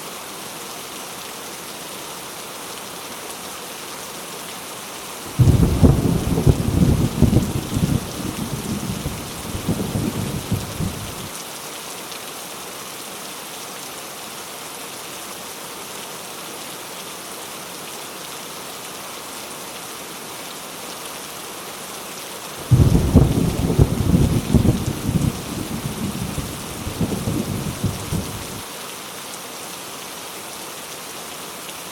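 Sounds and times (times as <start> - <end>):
heavy rain: 0.0 - 31.9
thunder rumbling: 5.3 - 11.3, 22.6 - 28.6
loud thunder peal: 5.4 - 11.2, 22.6 - 28.6.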